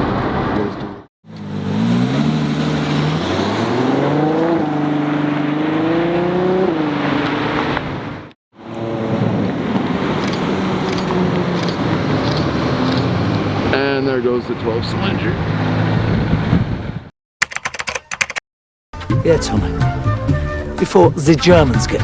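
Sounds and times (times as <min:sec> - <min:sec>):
car engine accelerating hard: 0:00.0 - 0:17.1.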